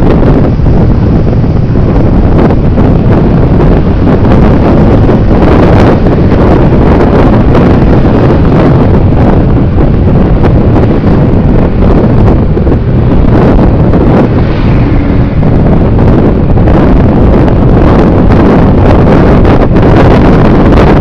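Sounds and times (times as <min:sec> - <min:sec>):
road noise: 0:00.0 - 0:21.0
wind buffeting microphone: 0:00.0 - 0:21.0.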